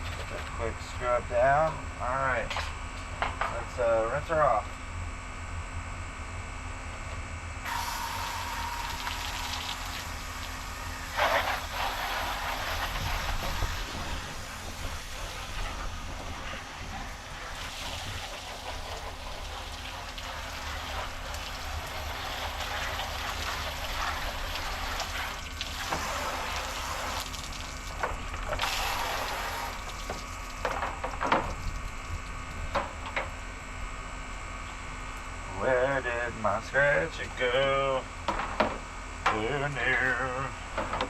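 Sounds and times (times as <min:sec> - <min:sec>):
water spraying on boat hull: 0:07.7 - 0:32.2.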